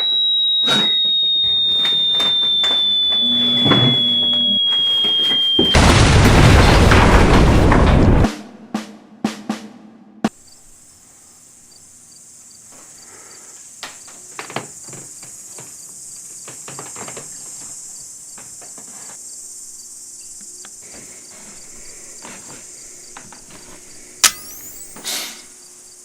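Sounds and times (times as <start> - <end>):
sharp clicks: 0.0 - 4.9, 24.2 - 25.0
crickets chirping: 0.0 - 6.9, 10.3 - 26.0.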